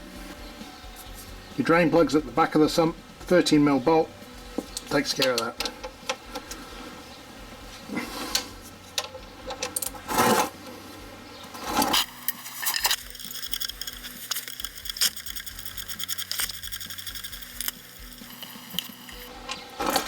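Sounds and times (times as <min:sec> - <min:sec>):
background music with steady beat: 0:00.0 - 0:20.0
spanner scraping and knocking metal: 0:07.8 - 0:10.7, 0:11.4 - 0:20.0.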